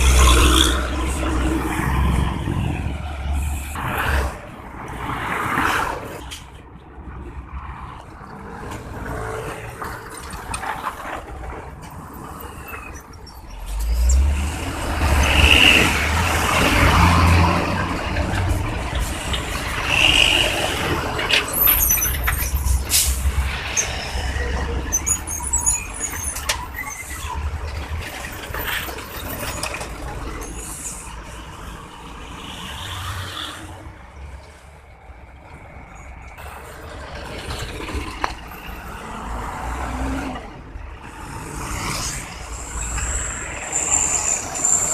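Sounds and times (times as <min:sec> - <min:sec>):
truck engine rumble: 0:00.0 - 0:05.2, 0:05.9 - 0:44.9
high-pitched brake squeals: 0:12.4 - 0:14.3, 0:19.8 - 0:27.6, 0:42.5 - 0:44.9.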